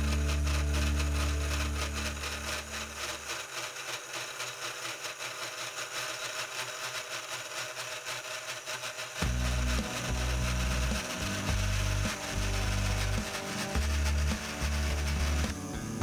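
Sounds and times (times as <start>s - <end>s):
machine hum: 0.0s - 5.0s, 9.1s - 16.0s
router spindle cutting drone: 0.0s - 16.0s.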